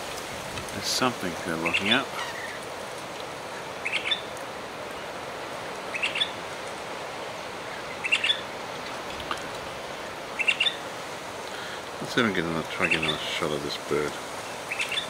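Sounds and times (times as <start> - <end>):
steady background hiss: 0.0 - 15.0
bird calling with high chirps: 1.6 - 2.6, 3.8 - 4.3, 5.9 - 6.4, 7.7 - 8.5, 10.0 - 10.8, 14.4 - 15.0.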